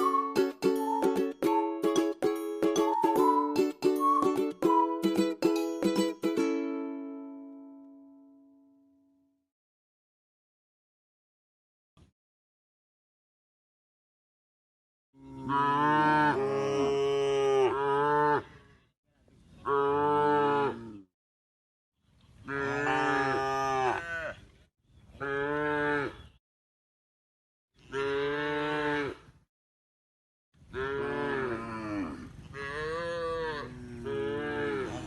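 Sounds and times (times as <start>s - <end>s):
cow mooing: 15.2s - 18.5s, 27.9s - 29.2s, 30.8s - 35.0s.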